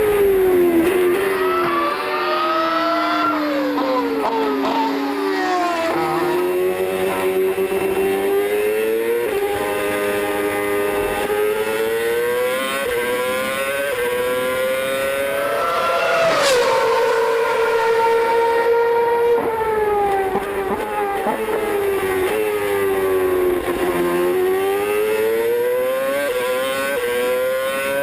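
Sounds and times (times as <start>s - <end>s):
racing car engine revving: 2.5s - 28.0s.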